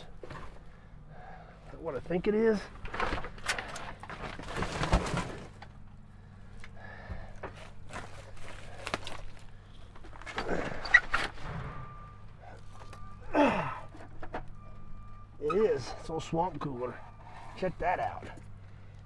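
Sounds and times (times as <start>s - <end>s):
junk being shifted by hand: 0.0s - 0.8s, 2.7s - 5.8s, 7.1s - 12.0s.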